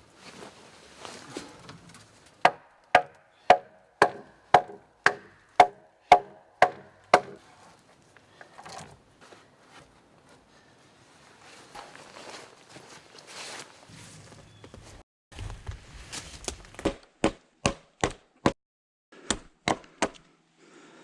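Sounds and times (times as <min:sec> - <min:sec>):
wood being chopped: 0:02.4 - 0:07.4, 0:16.4 - 0:18.6, 0:19.3 - 0:20.2.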